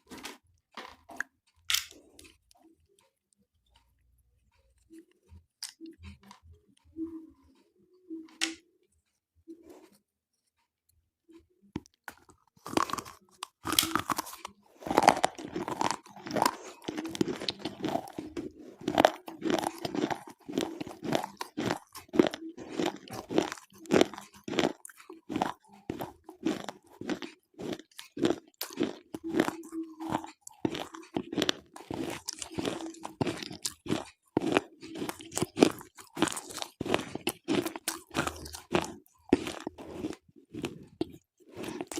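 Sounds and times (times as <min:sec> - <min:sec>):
brittle crunching chewing: 0:04.8 - 0:06.5, 0:11.3 - 0:41.9.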